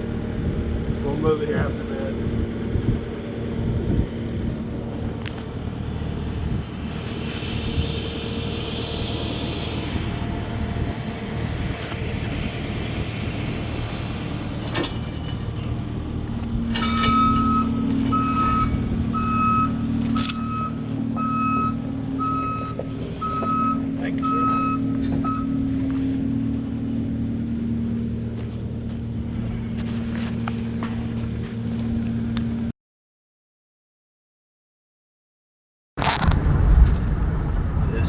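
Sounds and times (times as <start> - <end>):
heavy machine engine running: 0.0 - 32.7
metallic clank: 14.7 - 15.8, 16.7 - 18.8, 20.0 - 20.7
reverse alarm beeping: 16.8 - 25.7.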